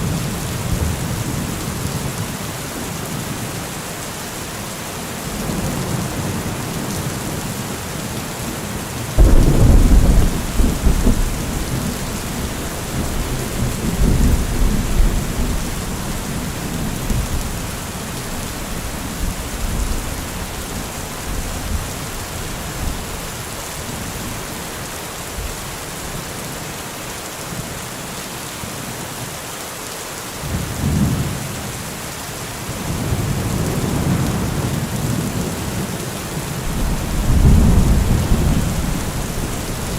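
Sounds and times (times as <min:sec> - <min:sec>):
steady rain hissing: 0:00.0 - 0:39.9
thunder rumbling: 0:09.2 - 0:23.0, 0:36.6 - 0:39.9.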